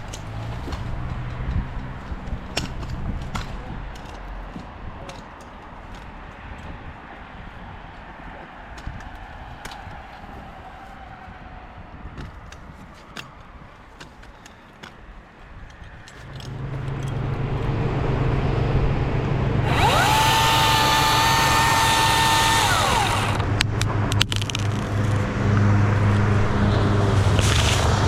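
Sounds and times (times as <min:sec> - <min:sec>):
steady engine hum: 0:00.0 - 0:28.0
chainsaw revving and cutting: 0:19.4 - 0:23.6
sharp clicks: 0:19.7 - 0:25.3.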